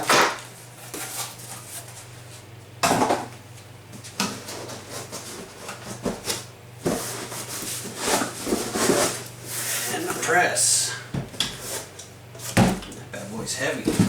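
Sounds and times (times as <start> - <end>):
steady low hum: 0.0 - 14.0
knocks and rustles of packaging: 4.0 - 9.3, 11.1 - 13.0, 13.8 - 14.0.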